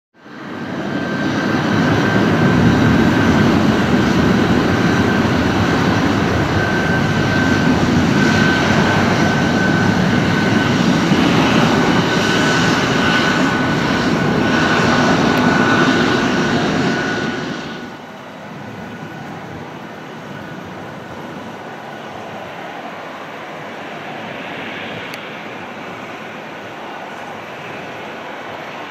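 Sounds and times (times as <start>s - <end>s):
high turbine whine: 0.2s - 28.9s
turboprop engines running: 0.2s - 28.9s.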